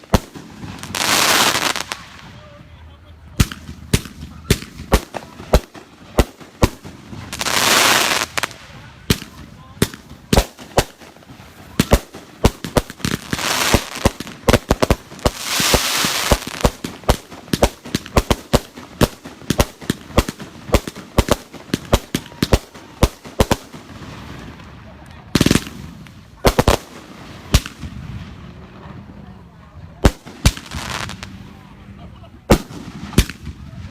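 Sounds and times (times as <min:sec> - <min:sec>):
fireworks firing: 0:00.0 - 0:33.9
firework hissing: 0:03.6 - 0:22.2.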